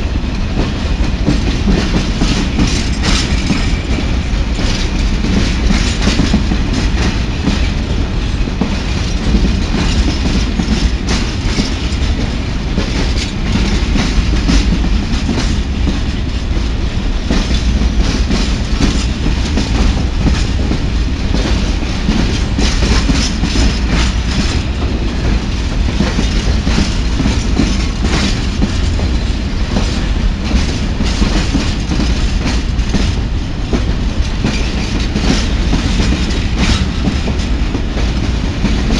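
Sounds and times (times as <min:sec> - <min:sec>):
train rumbling past: 0:00.0 - 0:38.9
wheels clattering over rail joints: 0:00.5 - 0:38.9.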